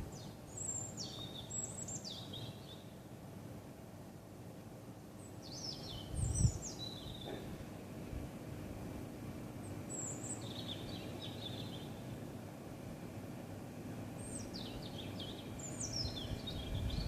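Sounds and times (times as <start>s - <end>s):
songbird singing trills: 0.0s - 3.0s, 5.2s - 7.5s, 9.6s - 12.1s, 14.1s - 17.0s
steady low rumble: 15.8s - 17.0s.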